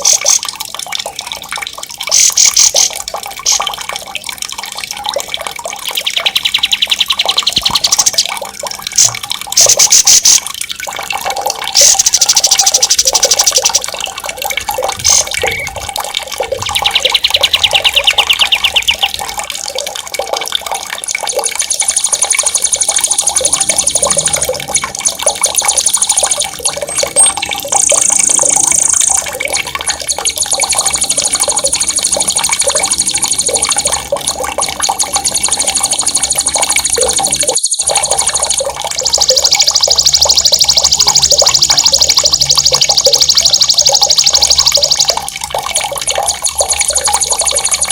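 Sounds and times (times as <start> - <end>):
running water: 0.0 - 47.9
songbirds singing rolling trills: 5.8 - 10.4, 11.8 - 13.9, 14.6 - 19.5, 21.4 - 34.0, 35.0 - 45.2.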